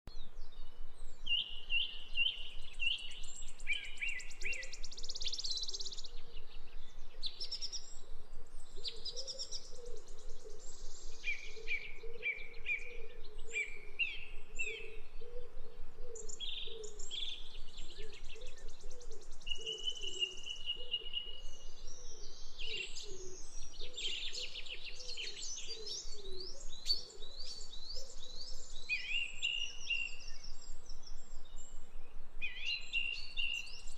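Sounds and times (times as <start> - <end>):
birds singing and calling: 0.1 - 33.9.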